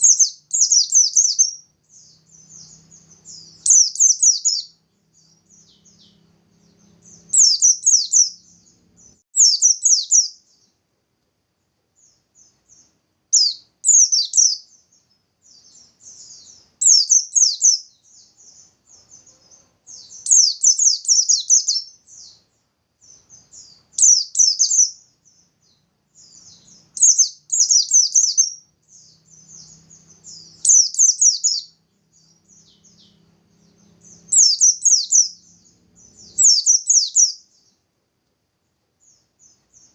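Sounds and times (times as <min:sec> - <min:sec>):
bird trilling bursts: 0:00.0 - 0:04.8, 0:06.8 - 0:08.8, 0:26.3 - 0:31.8, 0:34.0 - 0:37.4.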